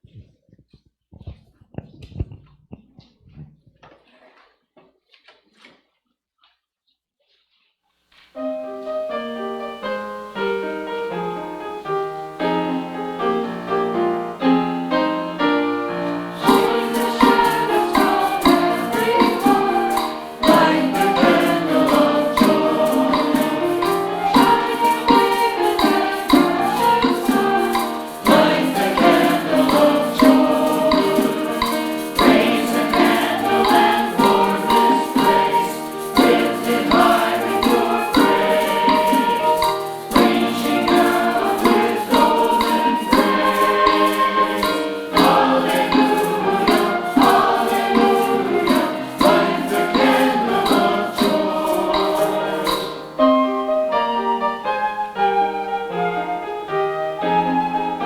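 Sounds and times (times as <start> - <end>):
instrumental accompaniment: 8.4 - 58.0
choir and congregation singing a hymn: 9.2 - 53.4
crisp percussion beat: 12.4 - 53.3.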